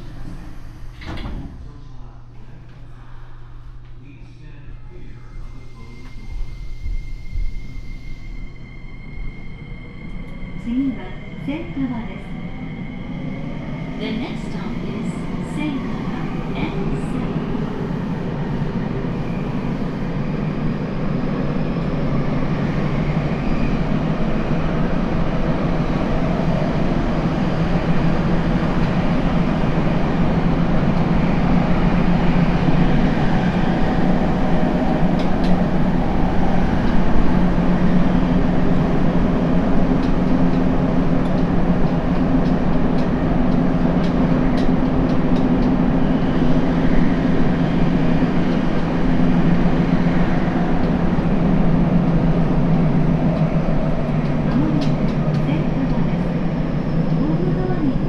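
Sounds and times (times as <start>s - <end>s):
subway train running: 0.0s - 58.0s.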